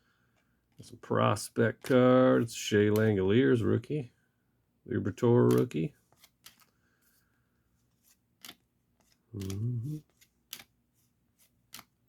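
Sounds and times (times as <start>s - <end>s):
trading cards clicking and snapping: 1.8s - 2.1s, 2.9s - 3.2s, 5.4s - 6.8s, 8.4s - 10.8s, 11.4s - 12.0s
murmured voice: 9.4s - 10.0s.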